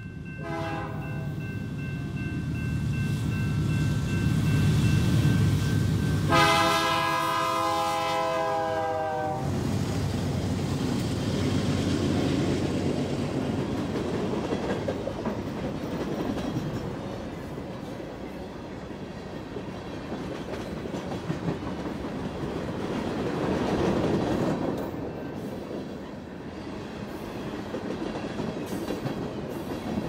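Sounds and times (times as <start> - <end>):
diesel locomotives rumbling: 0.0 - 30.0
train horn blast: 0.4 - 1.4, 6.2 - 9.6
wheels clattering on rails: 12.2 - 18.4, 19.2 - 25.9.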